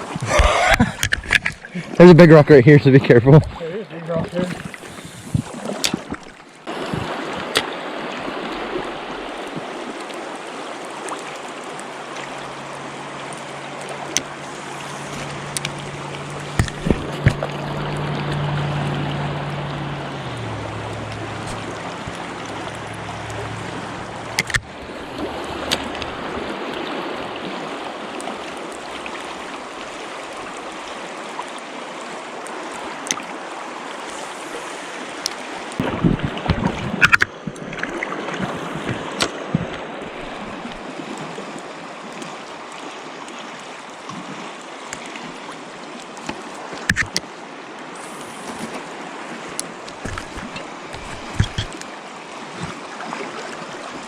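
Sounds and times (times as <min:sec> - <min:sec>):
river water rushing: 0:00.0 - 0:54.0
handling clicks and knocks: 0:24.3 - 0:24.7, 0:49.8 - 0:51.9.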